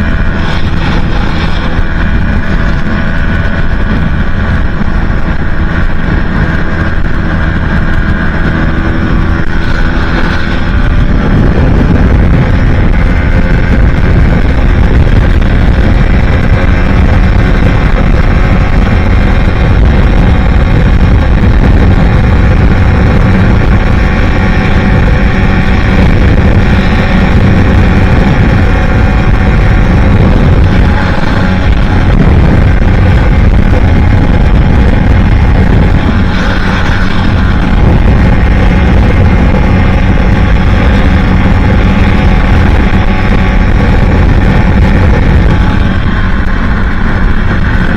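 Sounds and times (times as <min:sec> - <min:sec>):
motorcycle engine at speed: 0:00.0 - 0:47.9
wind noise on microphone: 0:00.0 - 0:47.9.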